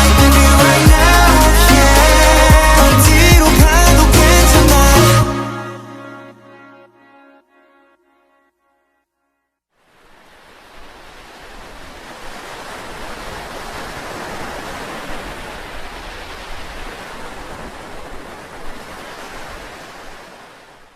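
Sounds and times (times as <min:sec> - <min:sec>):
ocean surf rushing: 0:00.0 - 0:05.5, 0:09.9 - 0:20.9.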